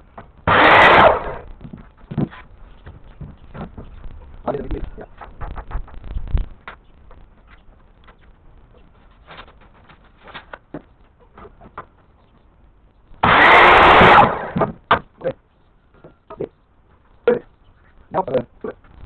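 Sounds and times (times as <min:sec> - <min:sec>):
power tool burst: 0:00.5 - 0:01.5, 0:13.2 - 0:14.7.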